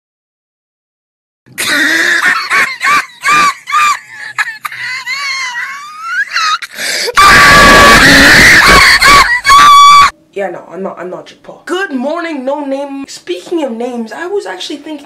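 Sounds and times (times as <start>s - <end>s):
loud distorted scream: 7.0s - 10.1s.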